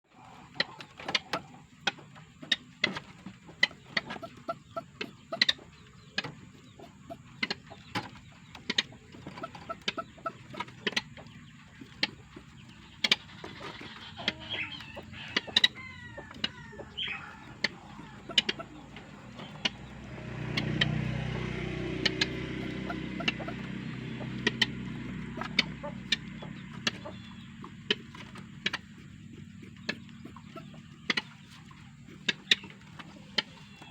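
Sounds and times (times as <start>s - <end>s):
bird clucking calls: 0.1s - 33.9s
low motor hum: 0.1s - 33.9s
bird sweeping calls: 12.9s - 33.9s.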